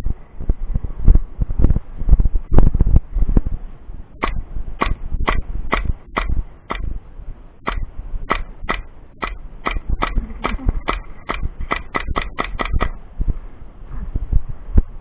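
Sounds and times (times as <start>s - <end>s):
airsoft gun shots: 4.2s - 7.0s, 7.7s - 13.1s.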